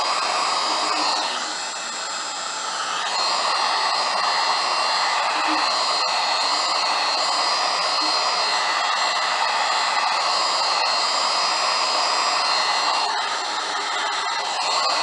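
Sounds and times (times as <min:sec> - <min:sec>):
hot-air blower whirring: 0:00.0 - 0:15.0.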